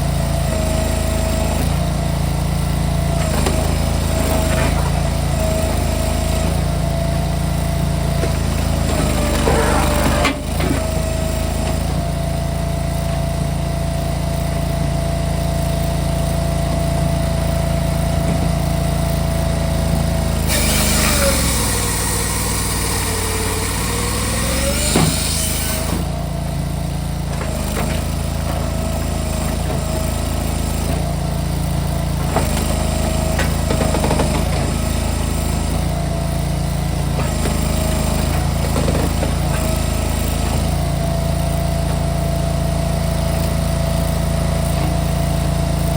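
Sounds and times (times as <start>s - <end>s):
machine engine running: 0.0s - 45.9s.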